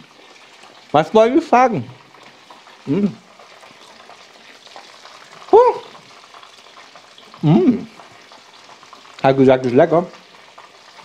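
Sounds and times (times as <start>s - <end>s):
chicken nuggets frying in a pan: 0.0s - 11.0s
man's short wordless vocal sounds: 7.4s - 7.9s.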